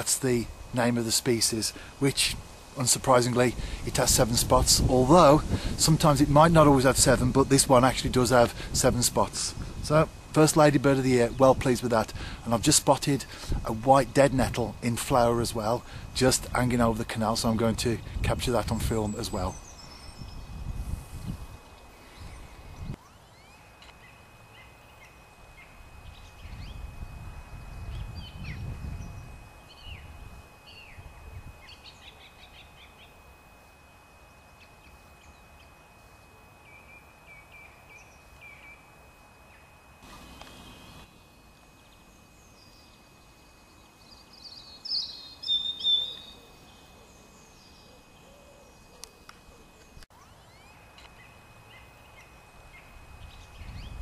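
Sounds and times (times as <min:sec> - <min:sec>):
small birds chirping and singing: 0:15.1 - 0:33.2, 0:41.8 - 0:54.0.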